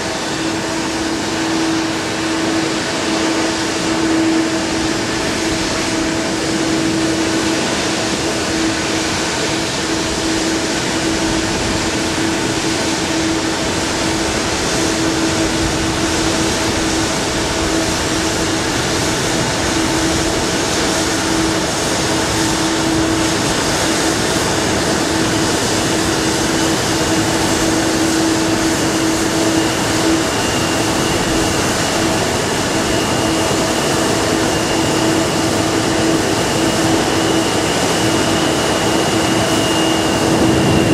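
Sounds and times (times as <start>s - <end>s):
jet engines in airliner cabin: 0.0s - 40.9s
steady hum tone: 34.0s - 40.9s.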